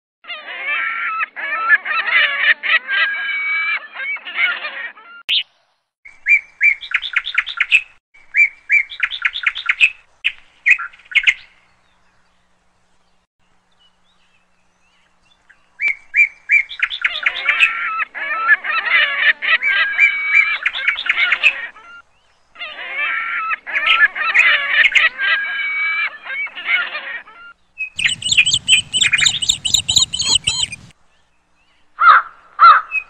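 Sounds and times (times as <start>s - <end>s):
birds chirping calls: 1.1s - 33.0s.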